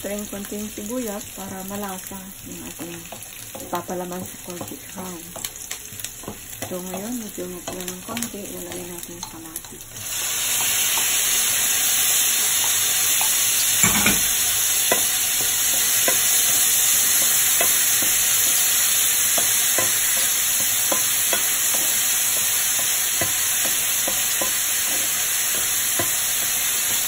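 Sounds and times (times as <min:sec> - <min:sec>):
vegetables sizzling in oil: 0:00.0 - 0:27.0
wooden spatula tapping pan: 0:03.0 - 0:08.3, 0:12.7 - 0:18.6, 0:19.2 - 0:27.0.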